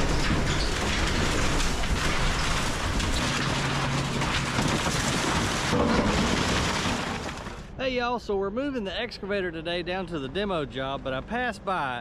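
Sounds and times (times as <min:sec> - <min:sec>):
house being torn down crackling: 0:00.0 - 0:07.8.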